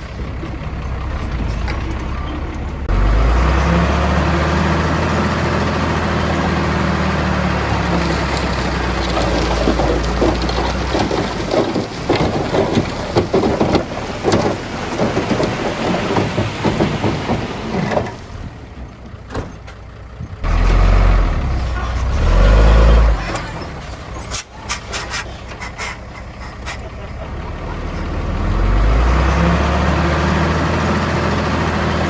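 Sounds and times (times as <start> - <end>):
deep engine rumble: 0.0 - 32.0
diesel engine running: 0.0 - 32.0
clatter of knocks and rattles: 7.7 - 20.4.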